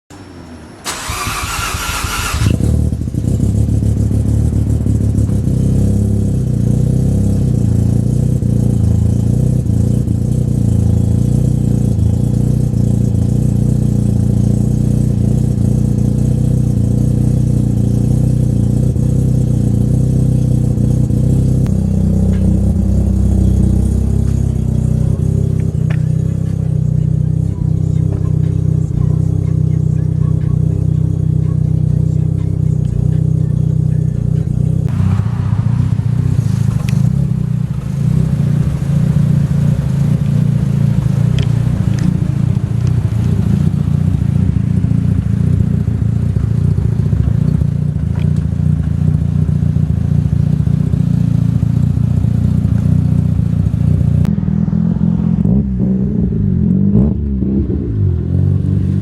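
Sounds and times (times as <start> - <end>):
rotary engine idling: 0.1 - 5.6, 20.2 - 54.1
raspy engine burst: 0.4 - 2.9, 34.9 - 44.3.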